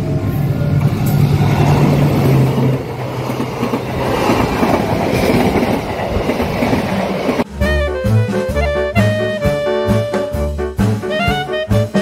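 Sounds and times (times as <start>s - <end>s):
train wheels rumbling and clattering: 0.0s - 7.6s.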